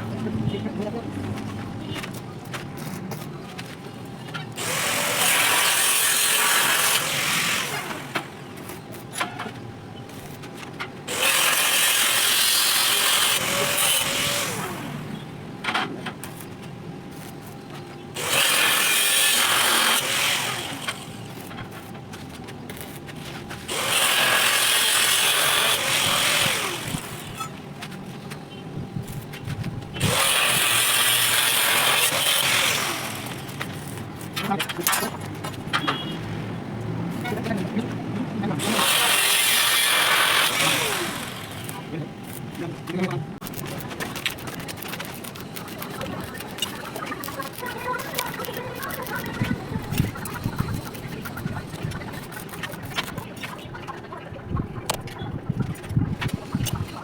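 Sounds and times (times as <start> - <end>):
arc welding crackling hiss: 10.1 - 10.5, 16.2 - 17.6, 18.2 - 27.5, 38.7 - 42.6, 43.4 - 53.0.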